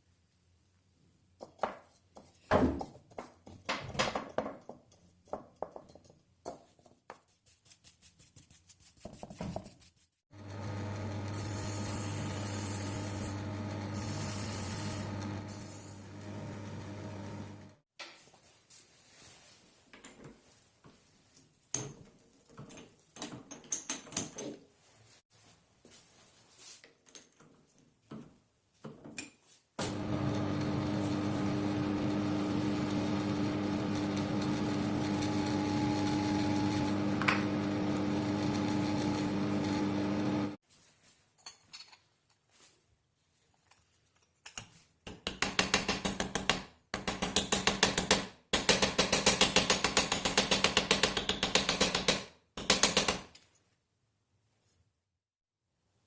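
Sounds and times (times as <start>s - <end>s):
small electric tool humming: 10.4s - 17.8s, 29.8s - 40.6s.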